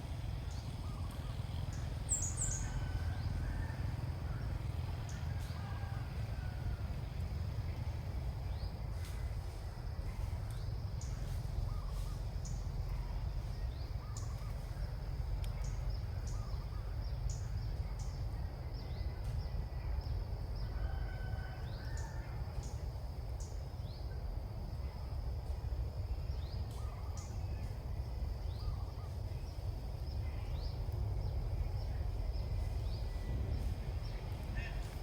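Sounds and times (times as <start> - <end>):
birds chirping: 0.0 - 6.5.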